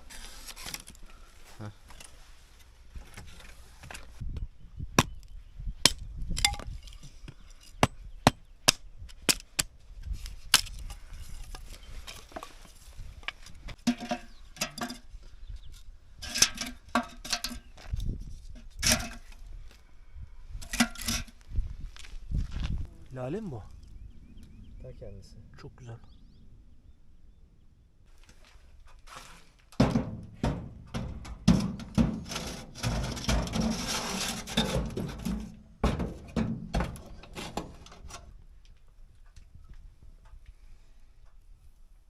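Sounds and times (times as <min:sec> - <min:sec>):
axe splitting firewood: 0:07.7 - 0:09.7, 0:29.1 - 0:38.2.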